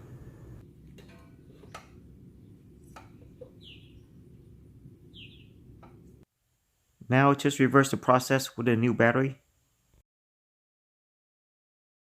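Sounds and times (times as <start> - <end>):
low steady hum: 0.0 - 6.2
falling bird chirps: 3.2 - 4.2, 5.1 - 5.6.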